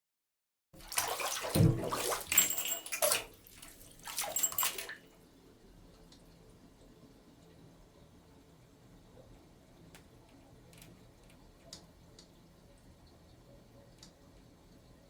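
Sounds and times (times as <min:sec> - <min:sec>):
bathtub drain gurgling: 0:00.8 - 0:05.0.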